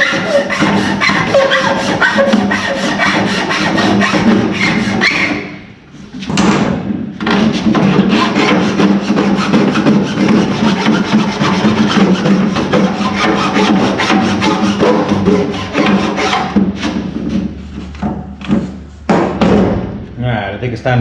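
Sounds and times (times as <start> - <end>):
hand file rasping on plastic: 0.0 - 5.4, 7.3 - 17.1.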